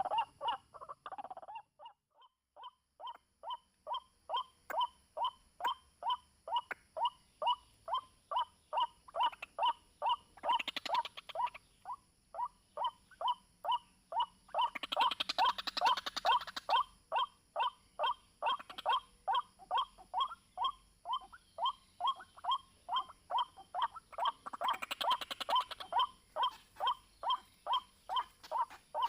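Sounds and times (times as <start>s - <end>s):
waterhen calling: 20.2s - 29.0s.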